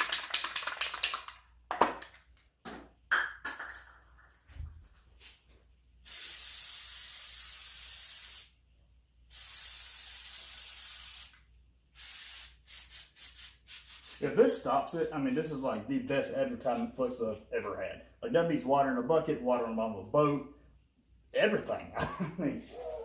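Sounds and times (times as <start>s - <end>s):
aerosol can spraying: 6.0s - 8.6s, 9.3s - 14.2s.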